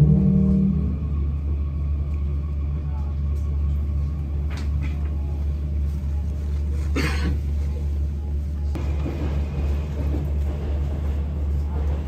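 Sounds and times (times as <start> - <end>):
electric train rumble: 0.0 - 12.0
faint voices: 10.0 - 12.0.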